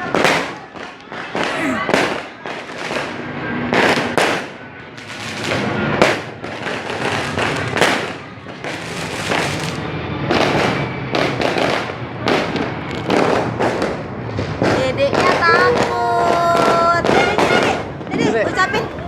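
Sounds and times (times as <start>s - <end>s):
firecracker bangs: 0.0s - 19.0s
fireworks crackling: 0.0s - 19.0s.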